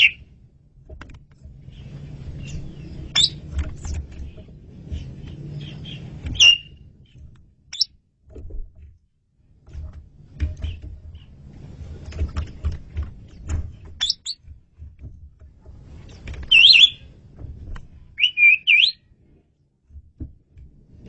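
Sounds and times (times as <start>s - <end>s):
low background rumble: 0.0s - 21.0s
starling chirping whistles: 2.4s - 3.4s, 5.6s - 6.8s, 14.0s - 14.4s, 16.5s - 17.0s, 18.2s - 19.0s.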